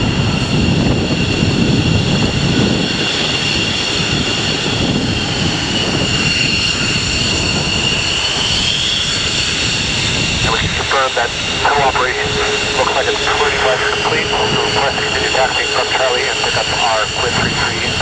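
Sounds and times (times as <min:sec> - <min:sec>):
jet engine low rumble: 0:00.0 - 0:18.0
jet engine whine: 0:00.0 - 0:18.0.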